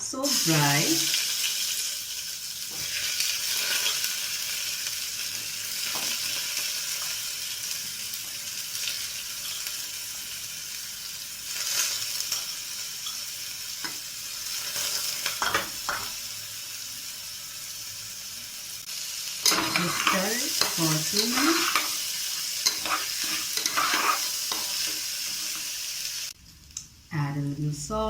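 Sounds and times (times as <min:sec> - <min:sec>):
food sizzling in hot fat: 0:00.0 - 0:28.0
spoon clinking and scraping pot: 0:19.4 - 0:22.0, 0:22.6 - 0:25.6.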